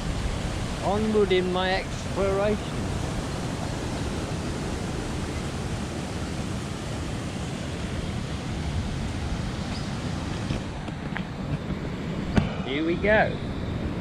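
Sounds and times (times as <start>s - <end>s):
water rushing through channel: 0.0s - 10.8s.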